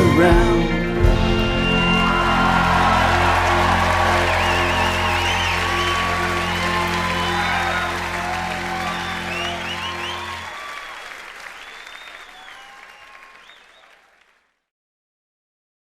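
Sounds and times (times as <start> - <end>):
rock band final chord: 0.9 - 10.4
crowd applauding and cheering: 1.1 - 14.4.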